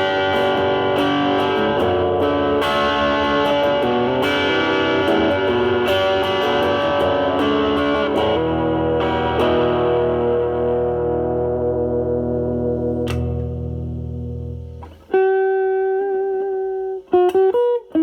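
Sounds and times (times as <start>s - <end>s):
overdriven electric guitar: 0.0s - 18.0s.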